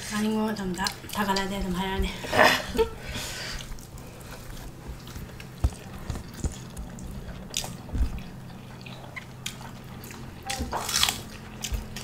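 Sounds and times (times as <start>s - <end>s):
wet chewing and lip smacking: 3.5s - 12.0s.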